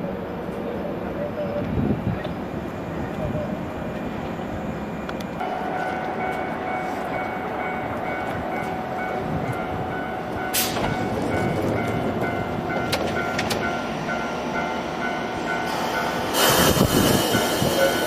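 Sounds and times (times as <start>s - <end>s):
electric train running: 3.0s - 18.0s.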